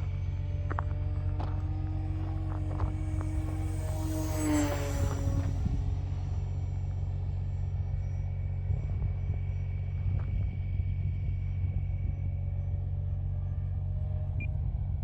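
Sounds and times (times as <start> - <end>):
wind rumbling on microphone: 0.0 - 6.5
distant electric motor whine: 0.0 - 15.0.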